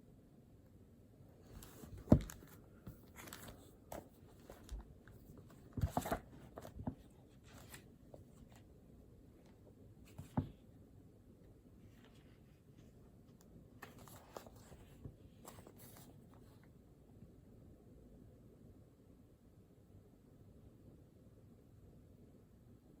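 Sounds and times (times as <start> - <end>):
paper rustling: 1.4 - 8.6, 13.8 - 16.5.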